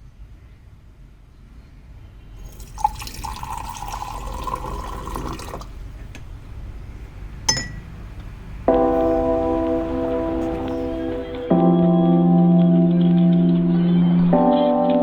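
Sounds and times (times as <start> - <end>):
water running into container: 2.4 - 5.8.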